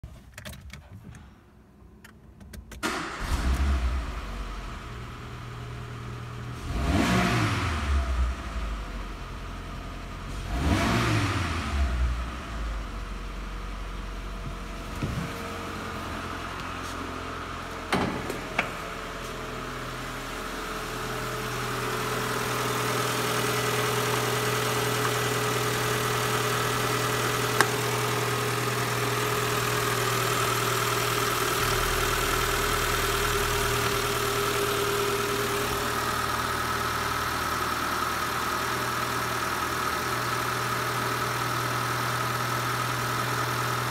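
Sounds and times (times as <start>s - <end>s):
car engine idling: 11.7s - 43.9s.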